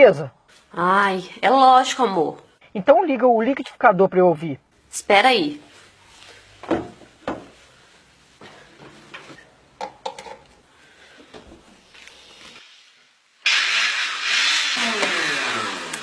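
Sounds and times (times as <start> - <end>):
electric blender running: 13.4 - 16.0.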